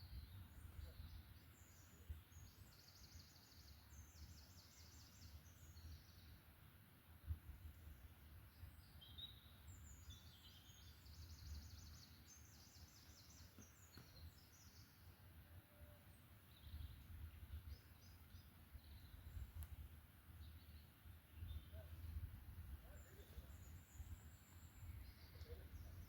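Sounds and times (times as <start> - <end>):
songbirds trilling: 7.7 - 15.2, 20.3 - 26.0.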